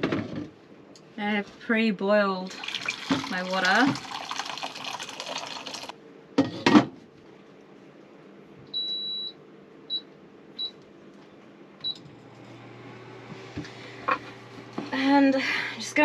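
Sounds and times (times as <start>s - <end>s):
water pouring: 2.5s - 5.9s.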